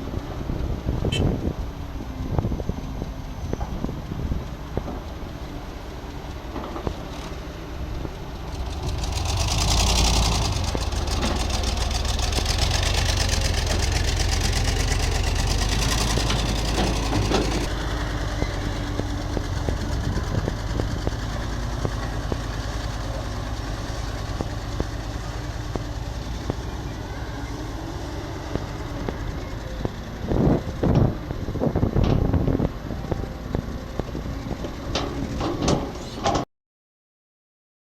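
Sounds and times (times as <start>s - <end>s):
diesel excavator rumbling: 0.0s - 36.5s.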